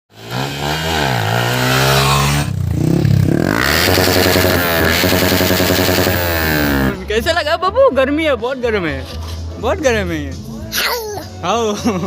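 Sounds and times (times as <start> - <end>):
motorcycle engine revving: 0.1 - 7.1.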